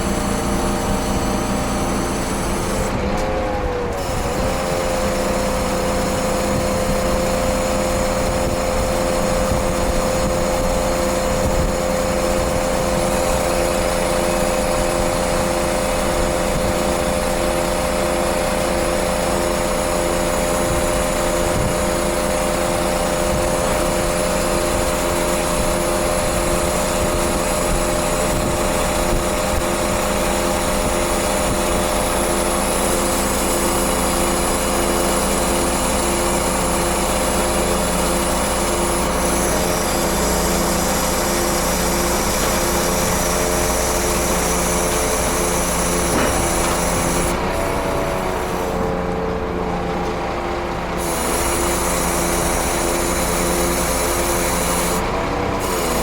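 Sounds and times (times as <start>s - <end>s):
steady whine: 0.0s - 17.6s
truck diesel engine running: 0.0s - 56.0s.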